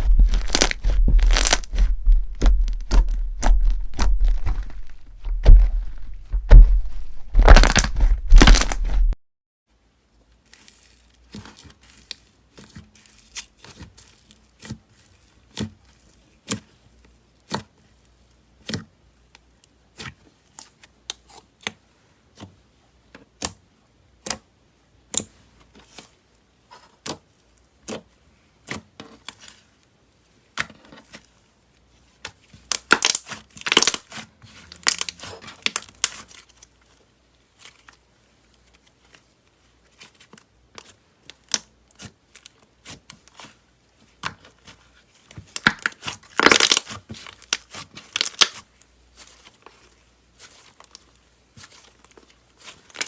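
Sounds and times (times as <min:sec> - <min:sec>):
slime crackling pops: 0:00.0 - 0:09.2.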